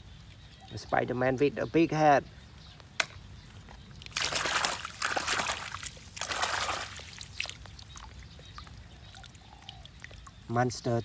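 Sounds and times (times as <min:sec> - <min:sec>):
water pouring and splashing: 0:04.0 - 0:10.3.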